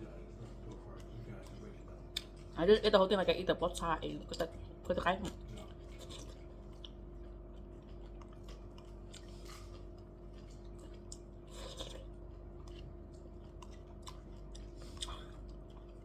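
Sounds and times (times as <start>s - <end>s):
person chewing food: 0.0s - 2.6s, 4.2s - 16.0s
steady background hum: 0.0s - 16.0s.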